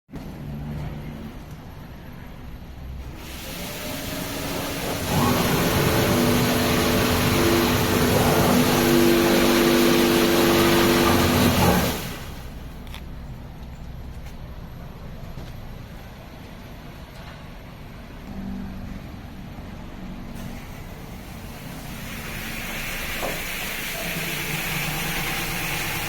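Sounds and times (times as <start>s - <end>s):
pump hum: 3.0s - 12.9s, 20.2s - 26.0s.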